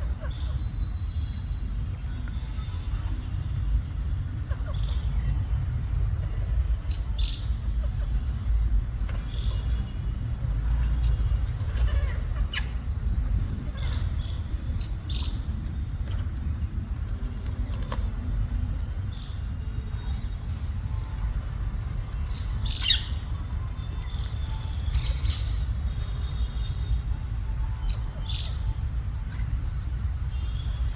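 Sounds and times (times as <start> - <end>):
parakeets calling: 4.4 - 5.6, 6.6 - 15.7, 21.6 - 26.9, 27.8 - 28.8.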